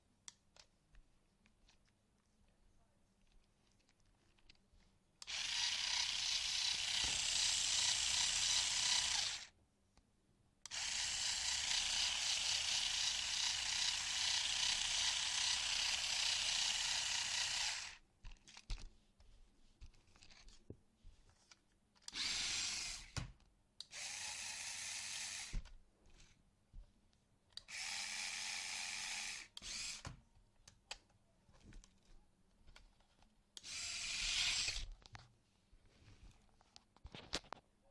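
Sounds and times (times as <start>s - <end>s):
toy car motor whirring: 5.2s - 9.5s, 10.7s - 18.6s, 22.0s - 23.2s, 23.9s - 25.7s, 27.7s - 30.1s, 33.6s - 34.9s.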